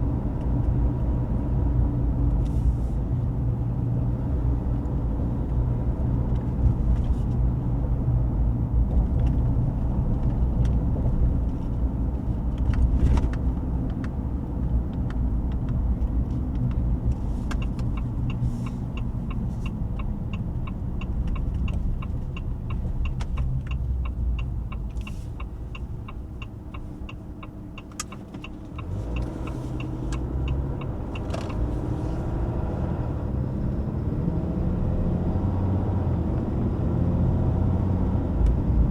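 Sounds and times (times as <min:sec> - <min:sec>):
turn signal clicking: 0:08.9 - 0:33.0.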